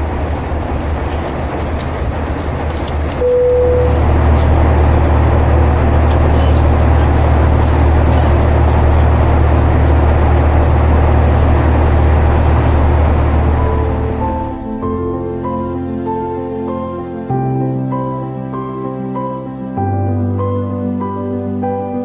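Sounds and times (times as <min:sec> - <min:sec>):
deep rumble: 0:00.0 - 0:21.2
airliner cabin engine roar: 0:00.0 - 0:22.0
brief single tone: 0:03.2 - 0:04.0.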